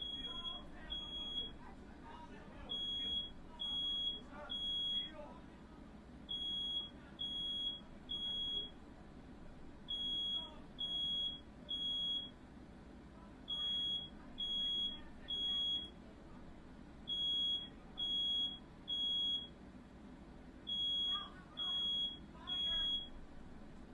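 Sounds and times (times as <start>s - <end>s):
smoke alarm beeping: 0.0s - 1.6s, 2.7s - 5.1s, 6.3s - 8.7s, 9.9s - 12.4s, 13.5s - 15.9s, 17.1s - 19.5s, 20.7s - 23.2s.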